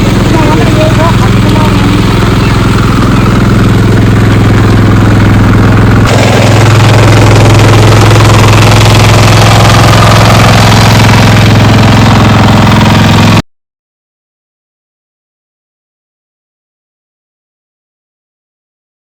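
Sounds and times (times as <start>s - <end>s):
engine humming loudly: 0.0s - 13.4s.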